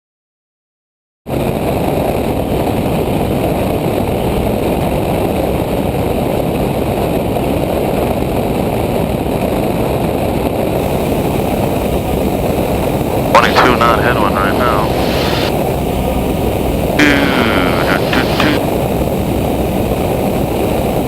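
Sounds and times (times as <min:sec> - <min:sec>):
light aircraft engine droning: 0:10.8 - 0:21.0.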